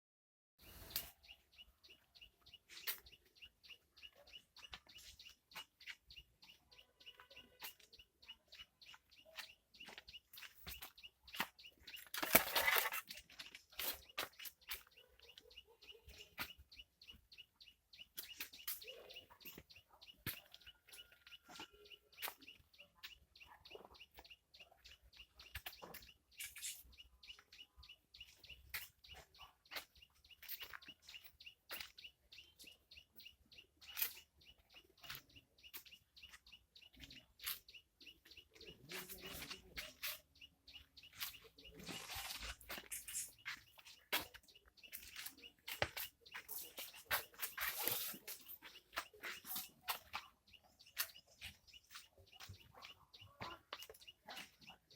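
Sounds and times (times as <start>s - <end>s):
birds chirping: 0.6s - 54.9s.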